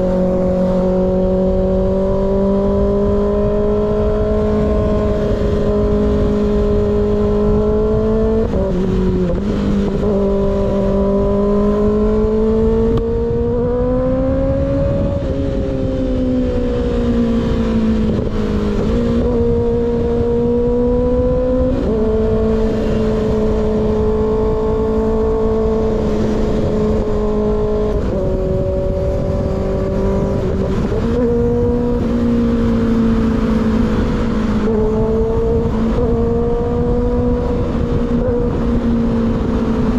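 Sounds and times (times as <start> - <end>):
motorcycle engine cruising: 0.0 - 39.9
wind rushing: 0.0 - 39.9.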